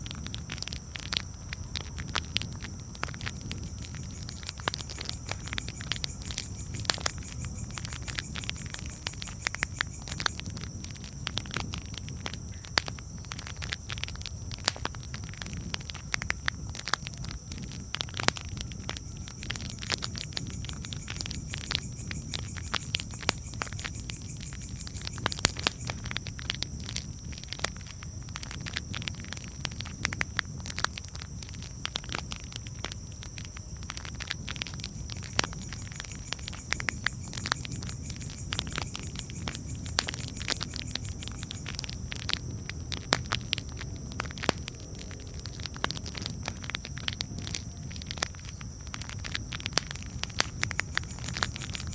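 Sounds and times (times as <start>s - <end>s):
low rumble of burning: 0.0s - 51.9s
campfire crackling: 0.1s - 51.9s.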